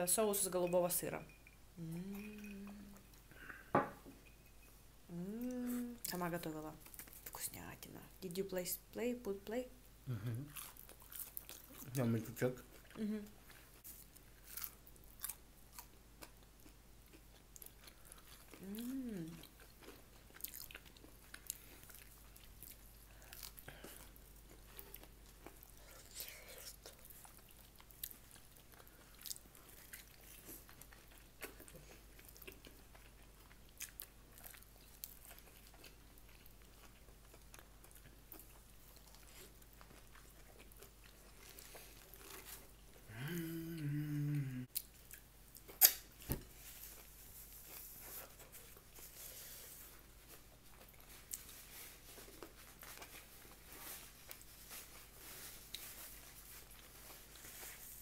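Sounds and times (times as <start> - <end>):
person humming: 1.8 - 3.0, 5.1 - 6.0, 10.1 - 10.5, 13.0 - 13.4, 18.6 - 19.4, 43.1 - 44.7
person chewing food: 10.1 - 12.0, 12.6 - 58.0
mouth clicks and crunches: 44.7 - 46.2.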